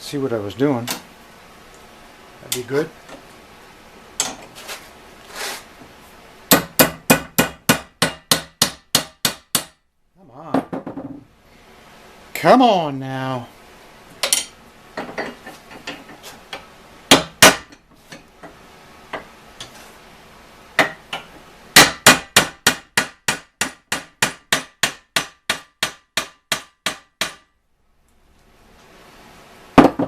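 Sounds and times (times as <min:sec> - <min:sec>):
hammer striking steel pin: 0:06.5 - 0:09.8, 0:20.8 - 0:27.5.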